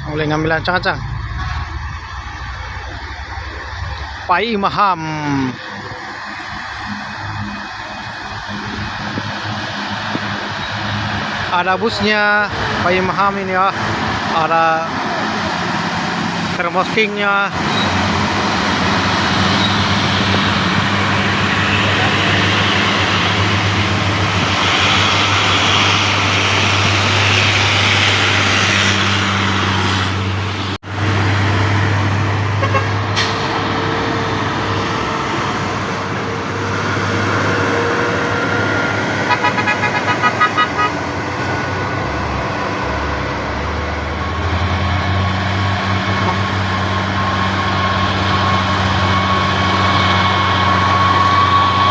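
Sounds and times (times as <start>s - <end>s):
heavy traffic: 0.0s - 51.9s
vehicle horn short toots: 32.6s - 33.0s, 39.3s - 40.9s.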